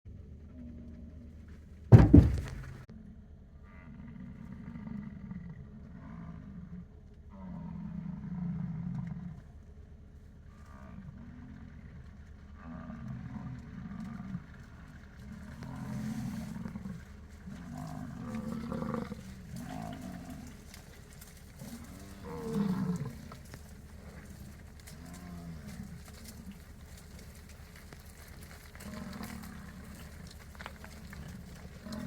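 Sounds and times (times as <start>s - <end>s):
bison bellowing: 12.6s - 27.0s, 28.0s - 32.0s.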